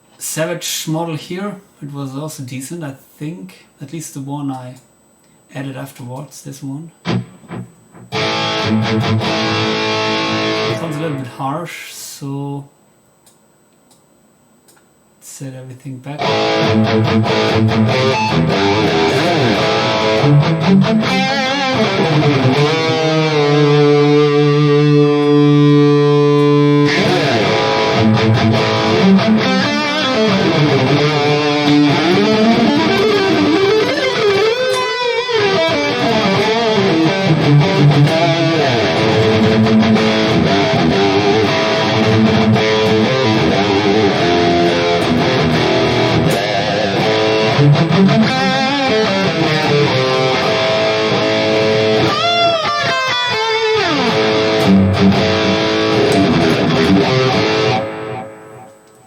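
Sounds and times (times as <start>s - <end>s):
distorted electric guitar: 7.0s - 11.4s, 16.2s - 59.0s.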